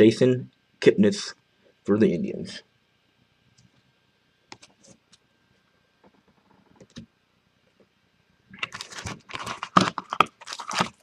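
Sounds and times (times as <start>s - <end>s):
foil wrapper crinkling and tearing: 8.6s - 11.0s.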